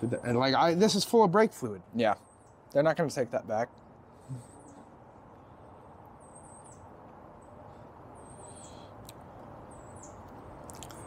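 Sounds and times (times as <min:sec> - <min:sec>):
faint bird chirps: 0:02.0 - 0:02.9, 0:04.1 - 0:11.0.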